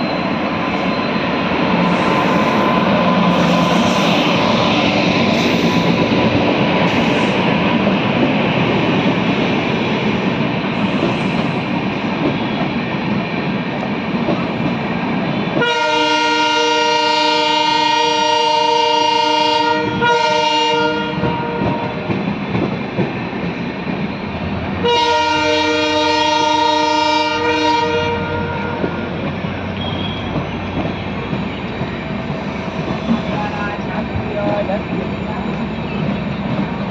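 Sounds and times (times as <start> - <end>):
train rumble and wheel clatter: 0.0 - 36.9
train horn blasts: 15.6 - 22.0, 24.8 - 29.0.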